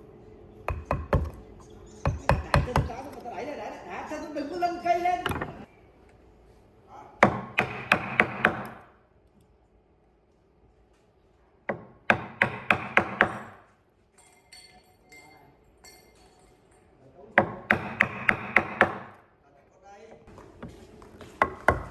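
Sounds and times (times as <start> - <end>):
hand tool striking wood: 0.7 - 1.4, 2.1 - 3.0.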